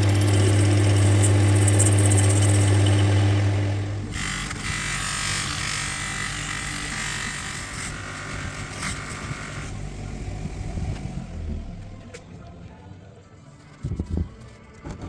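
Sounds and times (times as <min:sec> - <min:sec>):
electric power tool buzzing: 0:00.0 - 0:08.1.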